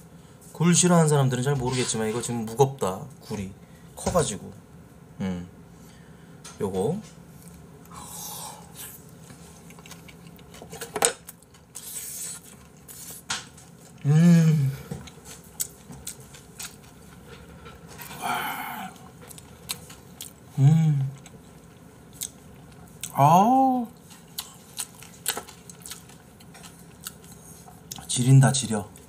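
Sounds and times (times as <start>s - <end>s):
person humming mmm: 5.2s - 5.5s, 14.0s - 15.0s, 18.1s - 19.1s, 20.5s - 21.3s
wet chewing: 8.7s - 14.0s, 14.9s - 20.5s, 21.1s - 23.2s, 24.0s - 28.2s.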